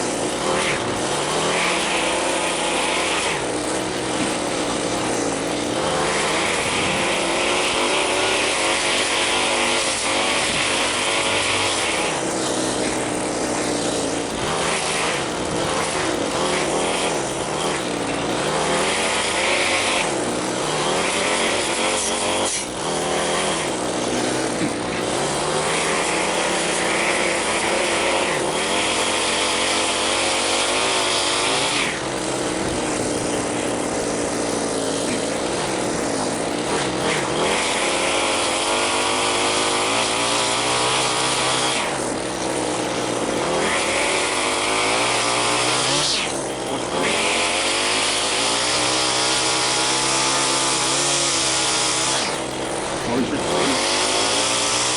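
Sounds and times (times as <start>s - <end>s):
small gasoline engine running: 0.0s - 54.9s.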